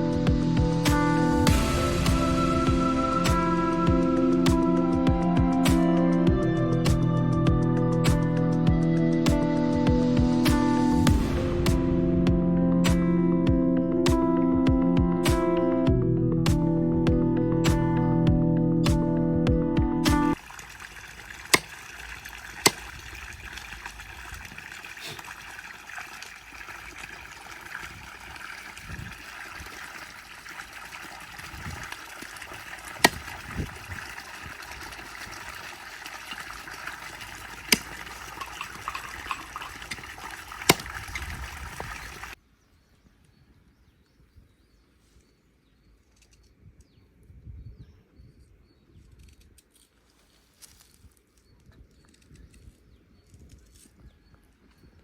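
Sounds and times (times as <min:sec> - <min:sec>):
water trickling and pouring: 0:00.1 - 0:04.6, 0:20.3 - 0:42.4.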